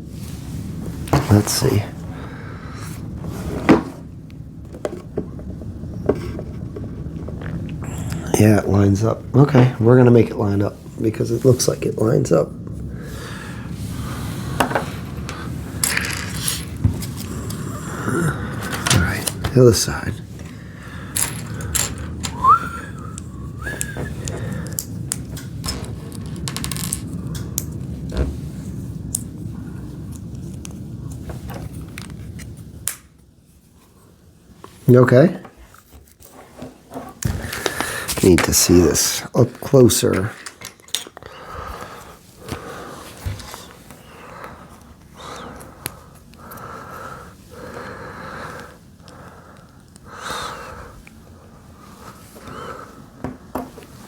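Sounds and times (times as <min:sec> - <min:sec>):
heavy breathing through nose: 0:02.0 - 0:03.3, 0:07.8 - 0:08.4, 0:12.8 - 0:25.0, 0:37.2 - 0:38.2, 0:41.2 - 0:53.2
short rising whistle-like tones: 0:22.3 - 0:24.2.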